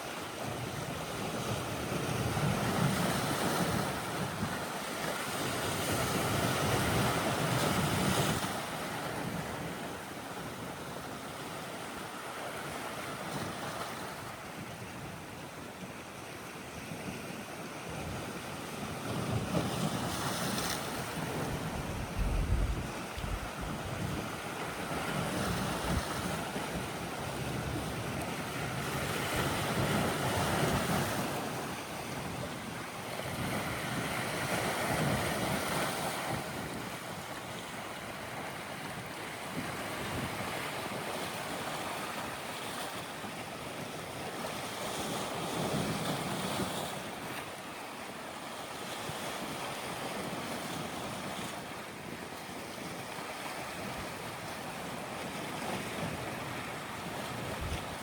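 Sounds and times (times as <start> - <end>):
waves washing on shore: 17.3 - 58.0
wind buffeting microphone: 19.1 - 30.9, 55.2 - 58.0.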